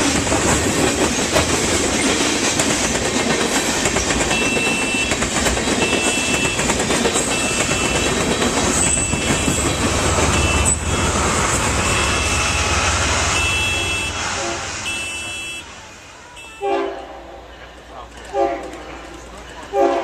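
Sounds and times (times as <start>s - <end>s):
train rumbling past: 0.0s - 20.0s
short high beeps: 10.3s - 14.3s, 14.9s - 15.7s.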